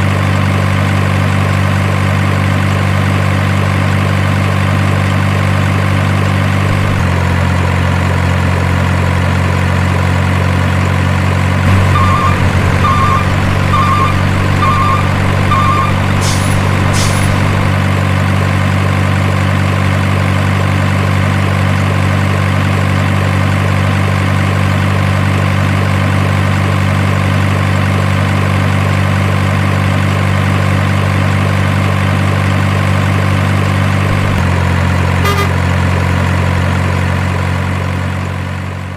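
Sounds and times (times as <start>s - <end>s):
heavy truck engine idling: 0.0s - 38.9s
short beeps: 11.7s - 17.7s, 35.2s - 35.6s
air brake hisses: 16.1s - 17.7s.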